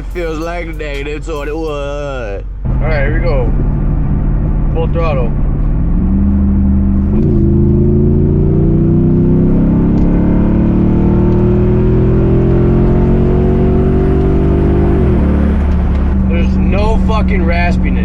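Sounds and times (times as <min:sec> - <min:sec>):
engine at full throttle: 0:00.0 - 0:18.0.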